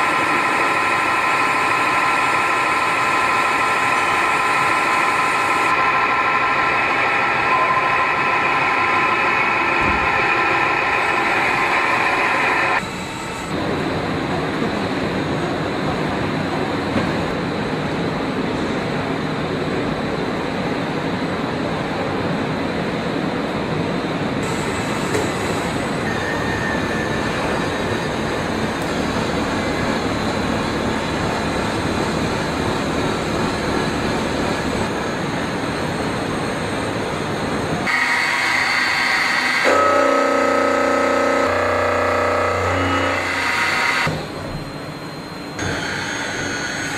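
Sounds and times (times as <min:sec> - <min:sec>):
machine cutting whine: 0:00.0 - 0:13.6, 0:24.4 - 0:46.9
machine running noise: 0:00.0 - 0:21.4, 0:22.5 - 0:46.9.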